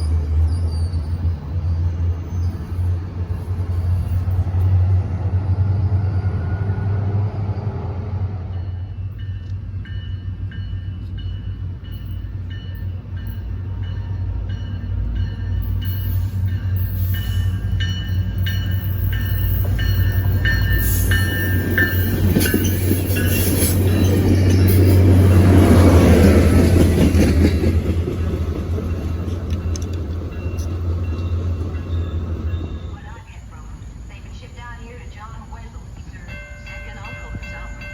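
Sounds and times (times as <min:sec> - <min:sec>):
train rumbling: 0:00.0 - 0:37.9
bell clanging: 0:08.6 - 0:25.5, 0:36.2 - 0:37.9.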